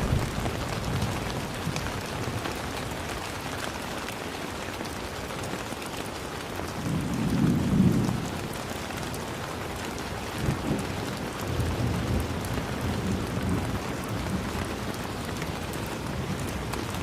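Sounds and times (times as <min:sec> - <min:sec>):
thunder rumbling: 0:00.0 - 0:02.4, 0:06.8 - 0:08.6
rain hissing: 0:00.0 - 0:03.9.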